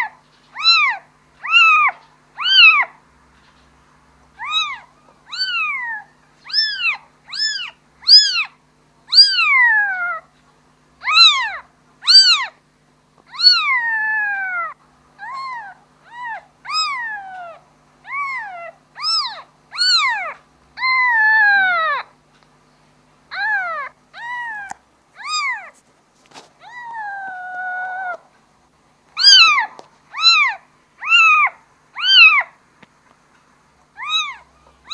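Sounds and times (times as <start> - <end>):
kitten meowing: 0.6 - 2.9, 4.4 - 10.2, 11.0 - 12.6, 13.3 - 22.1, 23.3 - 25.8, 26.6 - 28.2, 29.2 - 32.5, 34.0 - 34.9.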